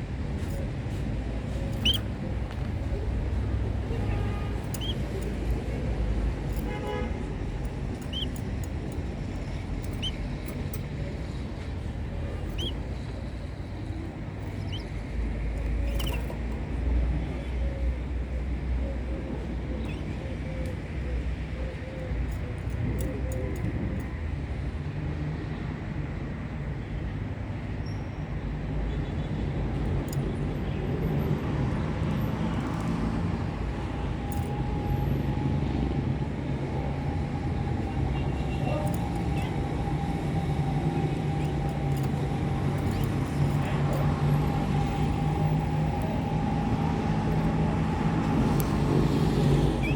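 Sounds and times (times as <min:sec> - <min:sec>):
light clicks: 0:00.5 - 0:03.9, 0:04.5 - 0:06.7, 0:07.5 - 0:17.0
faint short chirps: 0:01.6 - 0:02.1, 0:04.7 - 0:05.2, 0:08.0 - 0:08.4, 0:09.9 - 0:10.3, 0:12.4 - 0:12.8, 0:14.5 - 0:15.0, 0:15.8 - 0:16.4, 0:19.8 - 0:20.2.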